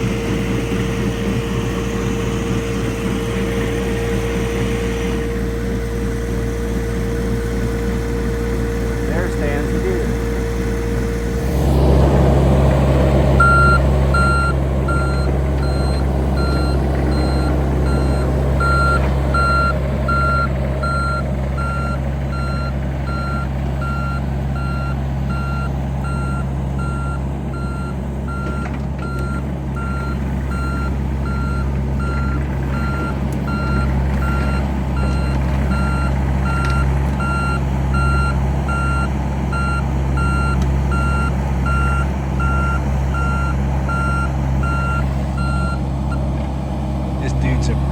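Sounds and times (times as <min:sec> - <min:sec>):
heavy machine engine running: 0:00.0 - 0:47.9
backup alarm beeping: 0:13.4 - 0:46.4.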